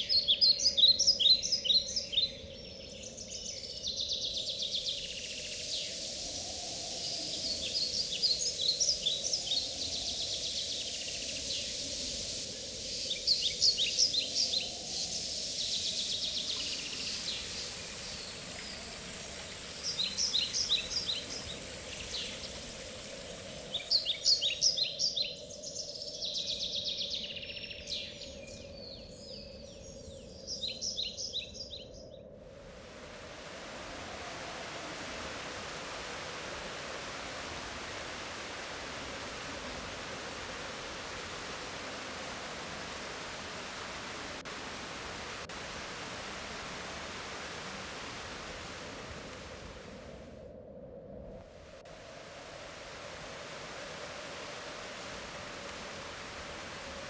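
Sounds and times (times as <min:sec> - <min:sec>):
songbirds trilling: 0:00.0 - 0:32.3
background hiss: 0:00.0 - 0:57.0
steady rushing noise: 0:32.5 - 0:50.5.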